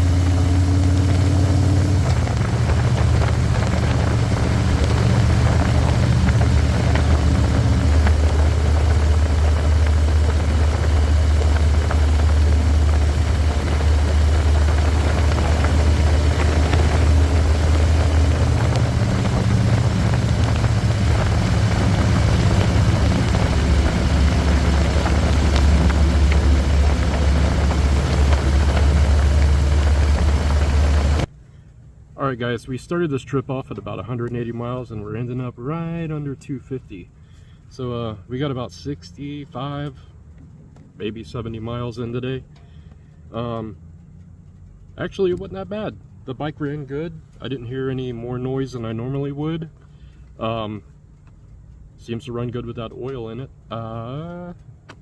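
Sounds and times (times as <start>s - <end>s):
steady rushing hiss: 0.0s - 31.3s
motorcycle engine on the road: 0.0s - 55.0s.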